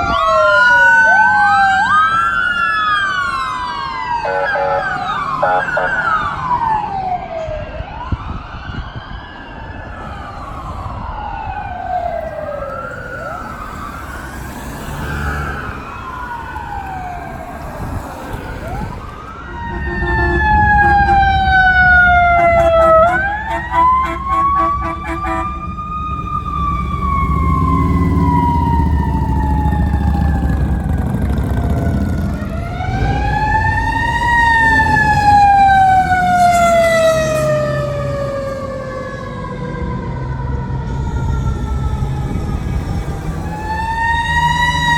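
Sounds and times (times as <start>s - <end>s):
sirens wailing: 0.0s - 44.9s
large vehicle engine rumble: 9.8s - 44.9s.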